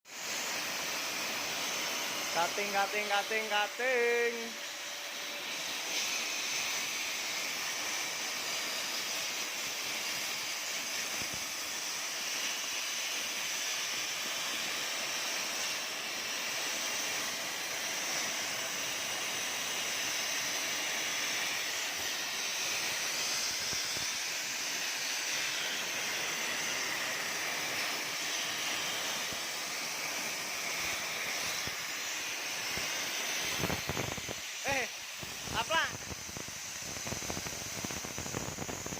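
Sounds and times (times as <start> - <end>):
cutting machine hissing: 0.1 - 38.9
faint steady whine: 16.1 - 38.9.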